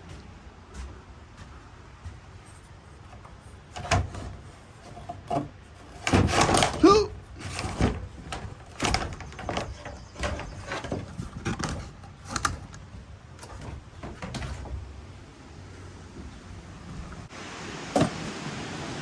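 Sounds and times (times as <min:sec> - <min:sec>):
gear knocks and scrapes: 0:02.0 - 0:15.0.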